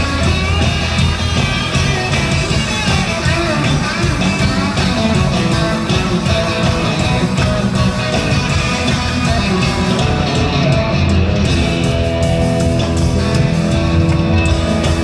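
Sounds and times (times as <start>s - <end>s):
electric guitar: 0.0s - 15.0s
live rock band playing: 0.0s - 15.0s.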